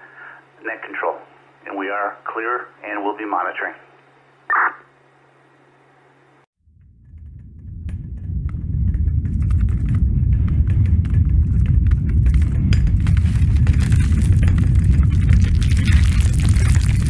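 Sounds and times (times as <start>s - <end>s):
deep rumble: 6.6s - 17.0s.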